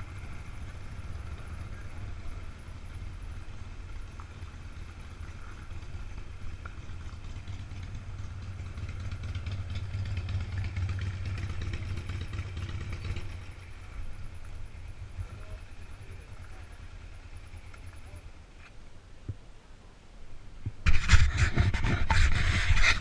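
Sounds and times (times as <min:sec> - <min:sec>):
vehicle engine passing: 0:00.0 - 0:17.6.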